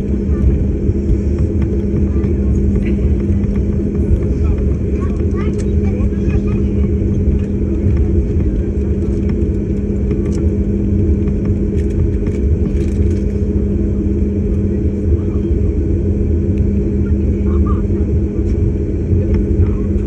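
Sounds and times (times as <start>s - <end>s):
aircraft engine drone in cabin: 0.0s - 20.0s.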